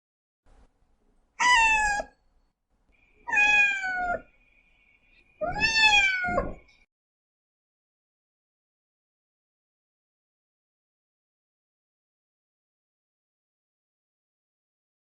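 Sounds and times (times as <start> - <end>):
cat meowing: 1.4 - 2.2, 3.2 - 4.3, 5.4 - 6.7.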